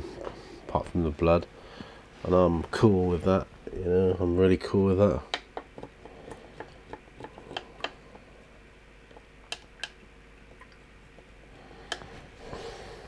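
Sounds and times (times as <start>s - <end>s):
small objects clicking and tapping: 5.3s - 8.0s.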